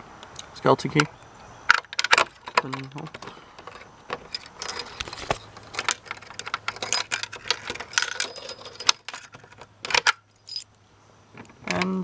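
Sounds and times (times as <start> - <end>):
key rattling and clicking in lock: 1.9 - 10.6.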